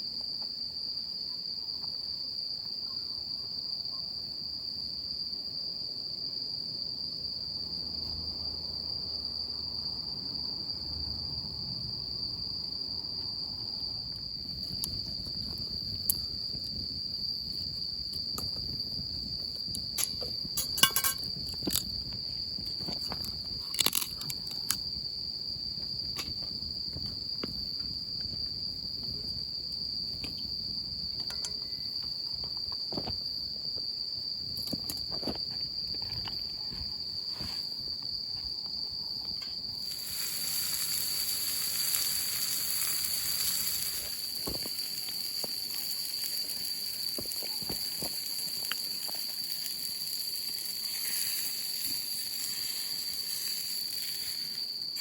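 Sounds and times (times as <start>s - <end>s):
insects chirring: 0.0s - 55.0s
sharp clicks and knocks: 19.7s - 21.9s.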